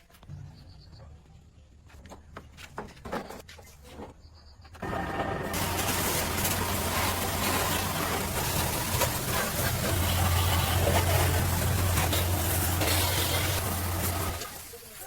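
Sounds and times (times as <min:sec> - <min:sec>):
welding arc crackling sizzle: 0:04.8 - 0:15.0.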